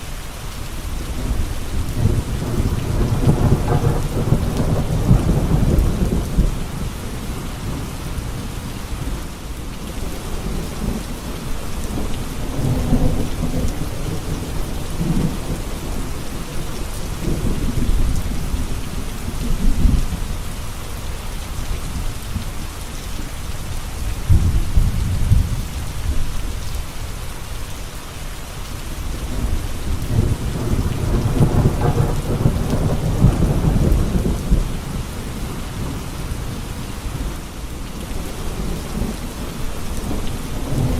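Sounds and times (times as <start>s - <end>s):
steady rain falling: 0.0s - 40.9s
low thunder rumbles: 1.0s - 20.6s, 24.0s - 26.8s, 29.1s - 40.9s.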